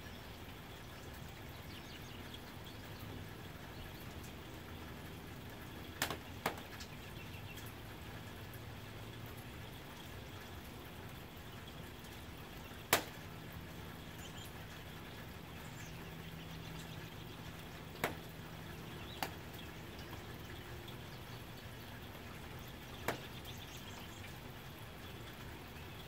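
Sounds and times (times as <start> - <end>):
rain on a tin roof: 0.0 - 26.0
loud drips striking: 12.8 - 13.4, 22.3 - 24.4.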